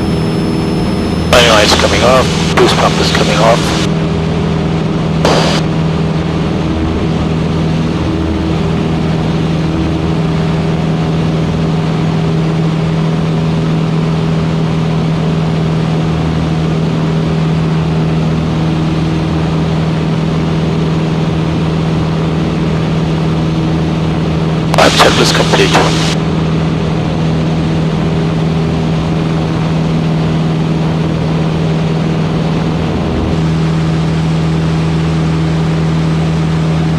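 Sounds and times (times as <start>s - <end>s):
cockpit noise rush: 0.0s - 3.9s, 5.3s - 5.6s, 24.8s - 26.2s
propeller aircraft engine hum: 0.0s - 26.2s, 26.9s - 36.9s.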